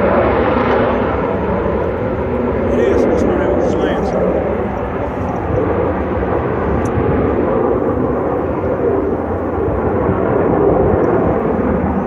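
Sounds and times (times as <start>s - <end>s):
fighter jets flying over: 0.0s - 12.0s.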